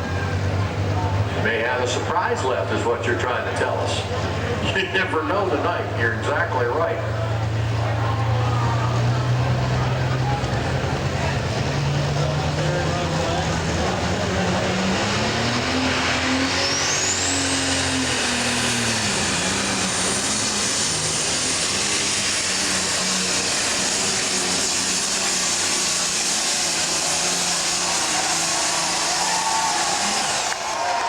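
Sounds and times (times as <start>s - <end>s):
tractor diesel engine revving: 0.0s - 31.0s
turbocharger whistle: 14.7s - 31.0s.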